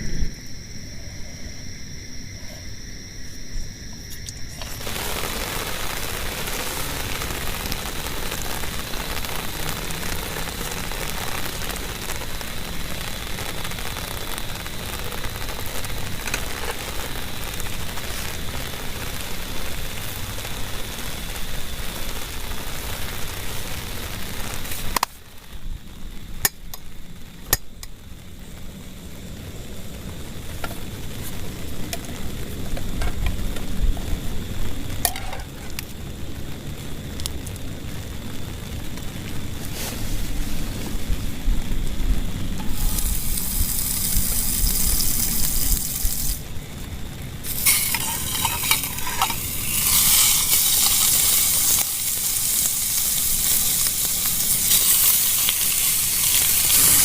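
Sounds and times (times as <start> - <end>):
low rumble: 0.0 - 3.8
heavy rain hissing: 0.0 - 57.0.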